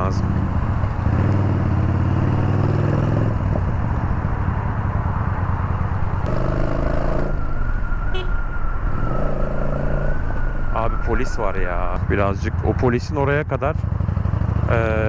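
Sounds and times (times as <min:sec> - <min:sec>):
motorcycle engine running: 0:00.0 - 0:07.4, 0:12.0 - 0:15.0.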